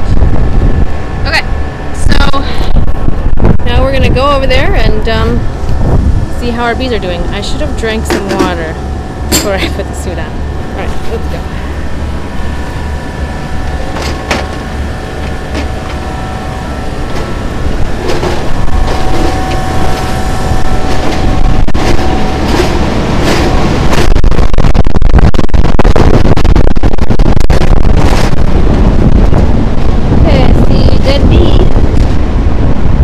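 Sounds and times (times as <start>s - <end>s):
low mechanical drone: 0.0s - 33.0s
wind buffeting microphone: 0.0s - 33.0s.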